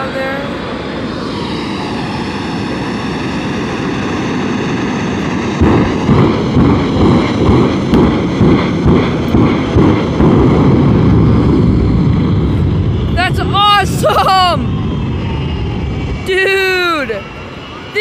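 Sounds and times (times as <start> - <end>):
aircraft engine droning overhead: 0.0 - 18.0.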